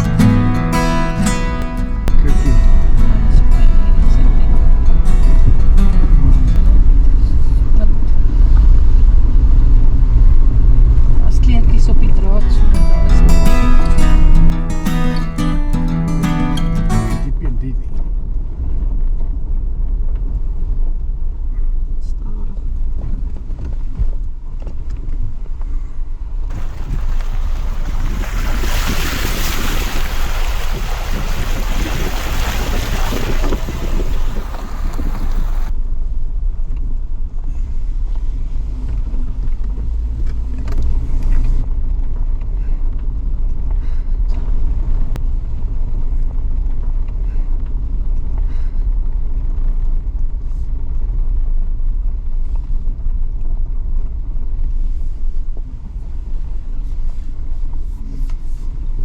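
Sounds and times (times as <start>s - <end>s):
engine low rumble: 0.0s - 59.0s
water splashing against vehicle: 26.5s - 35.7s.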